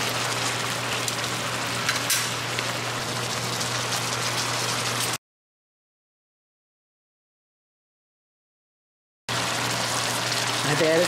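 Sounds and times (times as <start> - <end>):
meat sizzling in a skillet: 0.0 - 5.2, 9.3 - 11.0.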